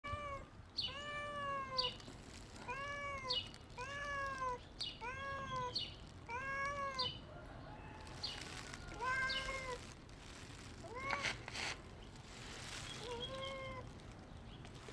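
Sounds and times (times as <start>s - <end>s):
cat meowing: 0.0s - 2.0s, 2.6s - 7.2s, 8.9s - 9.8s, 10.8s - 11.4s, 13.0s - 13.9s.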